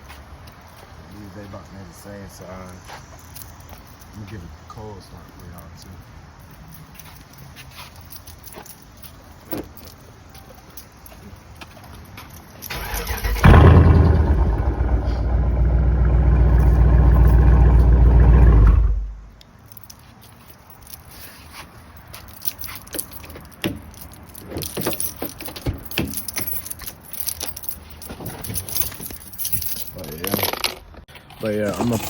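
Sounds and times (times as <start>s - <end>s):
car engine starting and running: 12.7s - 19.3s
light clicks and rattles: 19.3s - 32.0s.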